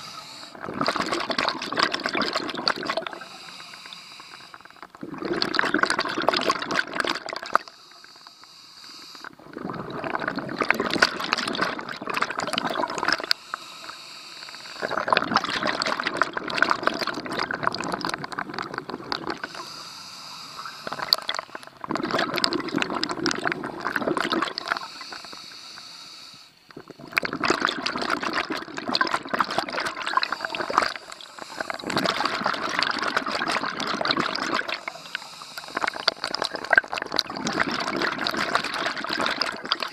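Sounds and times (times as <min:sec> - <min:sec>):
diver breathing in: 0:00.0 - 0:00.6, 0:03.0 - 0:04.9, 0:07.6 - 0:09.3, 0:13.2 - 0:15.1, 0:19.4 - 0:21.8, 0:24.5 - 0:26.7, 0:30.1 - 0:33.0, 0:34.6 - 0:36.3
scuba regulator exhaled bubbles: 0:00.0 - 0:07.8, 0:09.2 - 0:25.4, 0:26.7 - 0:39.9.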